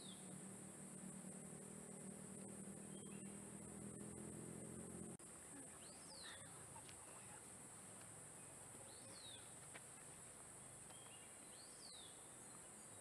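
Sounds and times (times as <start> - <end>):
insects buzzing: 0.0 - 13.0
whistled bird calls: 2.8 - 3.4.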